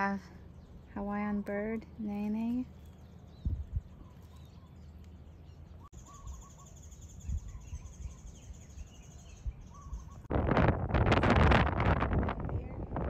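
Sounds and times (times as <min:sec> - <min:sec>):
bird chirps: 0:02.0 - 0:10.3
wind buffeting microphone: 0:03.3 - 0:04.4, 0:07.1 - 0:13.0.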